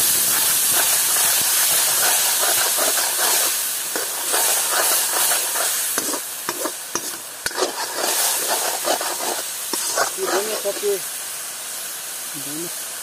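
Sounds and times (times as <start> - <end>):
curry sizzling in a wok: 0.0 - 13.0
ladle scraping and clinking on pan: 1.8 - 10.6.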